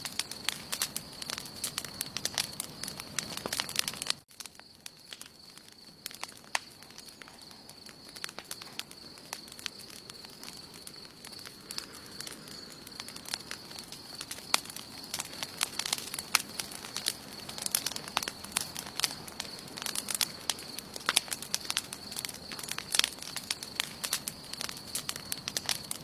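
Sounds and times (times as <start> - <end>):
campfire crackling and popping: 0.0 - 26.0.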